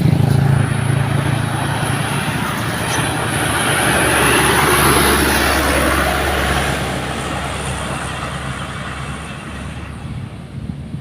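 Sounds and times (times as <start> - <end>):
diesel truck engine climbing: 0.0 - 11.0.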